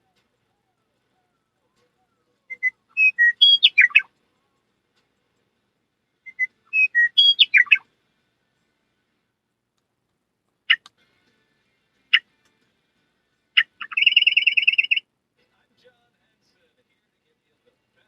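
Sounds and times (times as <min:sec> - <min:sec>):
bird whistling and chirping: 0:00.0 - 0:04.1, 0:06.3 - 0:07.8, 0:13.6 - 0:15.0.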